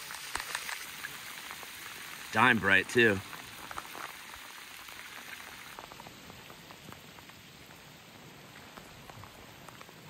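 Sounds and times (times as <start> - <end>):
rain pattering: 0.0 - 10.0.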